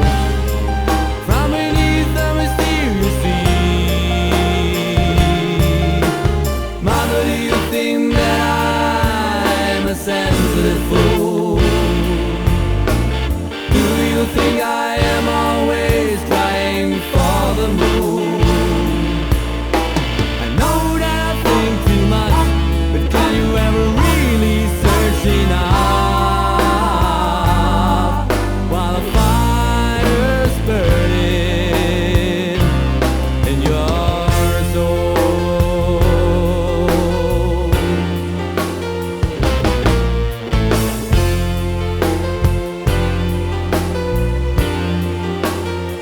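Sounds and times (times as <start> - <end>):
bending lead melody: 0.0 - 46.0
pop-rock band playing: 0.0 - 46.0.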